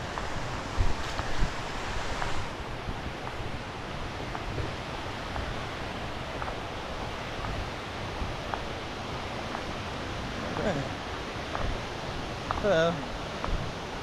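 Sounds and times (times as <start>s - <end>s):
creek and waterfall rushing: 0.0s - 14.0s.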